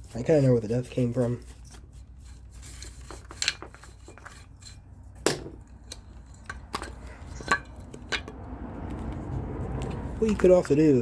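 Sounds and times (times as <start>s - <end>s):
tools and parts knocking: 3.0s - 9.2s.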